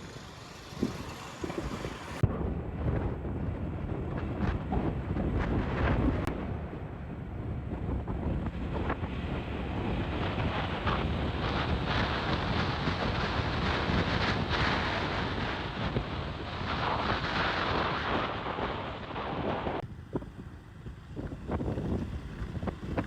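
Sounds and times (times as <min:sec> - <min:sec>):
motorcycle engine running: 0:00.0 - 0:02.2
wind rushing over microphone: 0:00.0 - 0:23.0.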